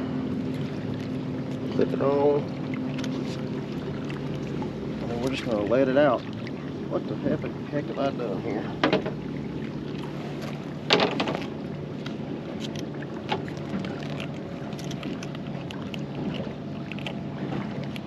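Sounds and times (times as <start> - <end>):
boat motor humming: 0.0 - 18.0
water noise: 0.0 - 18.0
wind: 0.0 - 18.0.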